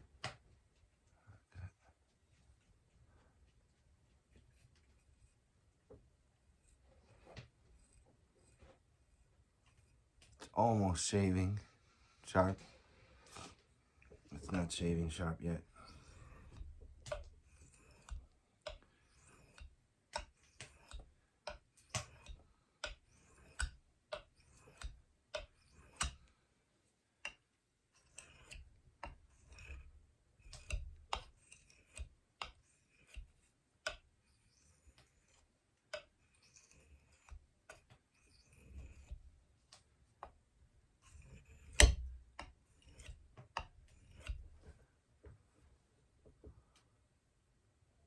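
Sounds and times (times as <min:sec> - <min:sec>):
faint scraping of knife: 0:06.6 - 0:11.5, 0:14.3 - 0:21.1, 0:21.8 - 0:26.3, 0:27.9 - 0:39.3, 0:41.0 - 0:44.8
knife clicking on water stone: 0:15.9 - 0:26.3, 0:27.2 - 0:27.4, 0:28.0 - 0:34.1, 0:34.8 - 0:39.2, 0:41.1 - 0:44.5.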